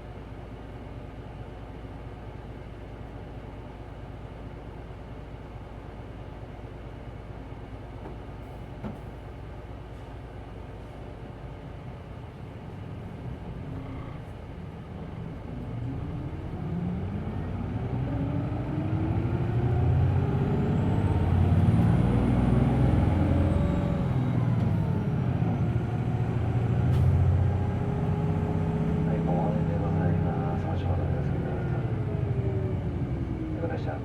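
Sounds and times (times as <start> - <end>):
bus engine revving: 12.8 - 34.0.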